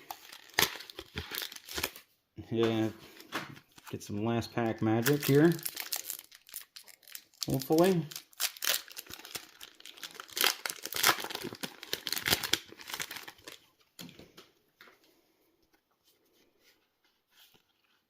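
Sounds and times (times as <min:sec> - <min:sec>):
foil wrapper crinkling and tearing: 0:00.0 - 0:02.0, 0:04.9 - 0:13.6.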